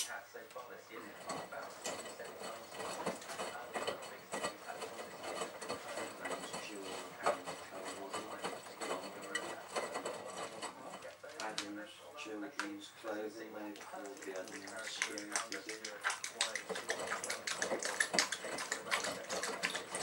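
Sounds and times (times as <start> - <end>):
soft clicking and rubbing: 0.6 - 11.8
washing machine drum turning: 1.0 - 11.6, 14.2 - 20.0.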